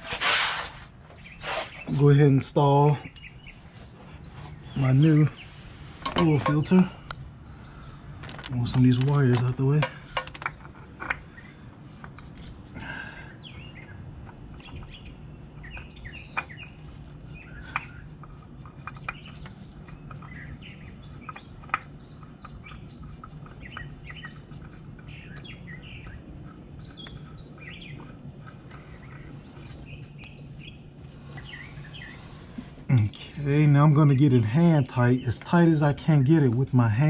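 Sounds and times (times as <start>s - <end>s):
small birds chirping: 1.0s - 37.0s.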